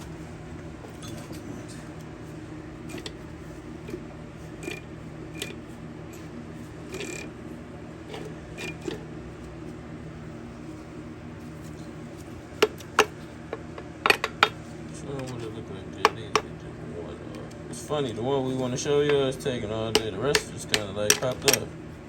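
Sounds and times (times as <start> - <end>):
steady low hum: 0.0 - 22.0
hand tools tapping on metal: 12.6 - 14.6, 15.2 - 16.5, 19.0 - 21.7.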